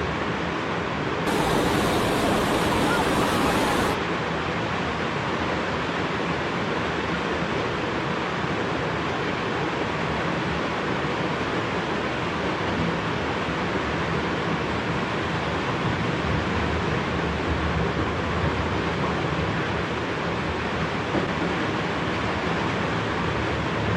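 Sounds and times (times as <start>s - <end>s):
floodwater rushing: 1.3s - 4.0s.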